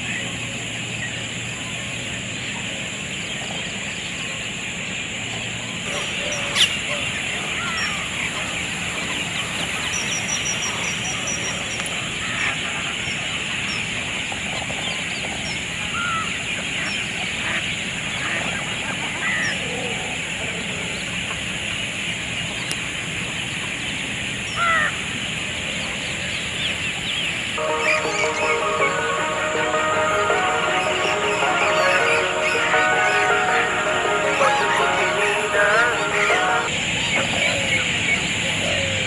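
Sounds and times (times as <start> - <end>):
birds calling: 5.8 - 13.8
high-pitched drone: 27.6 - 36.7.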